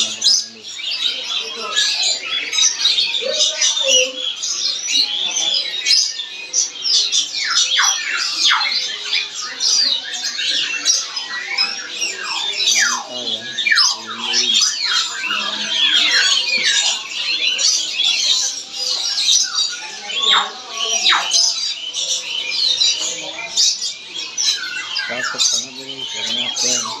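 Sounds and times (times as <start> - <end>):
parrot squawking and screeching: 24.4 - 27.0.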